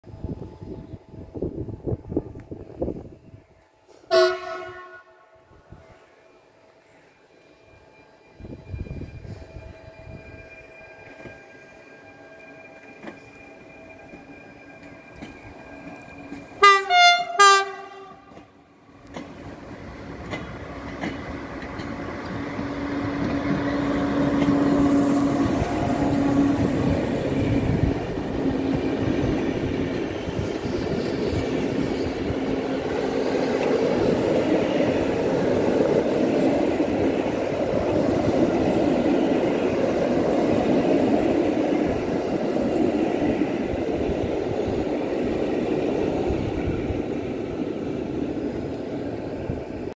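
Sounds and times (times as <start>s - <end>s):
train passing with rumble: 0.0s - 49.9s
train horn blasts: 3.9s - 5.6s, 16.6s - 18.6s.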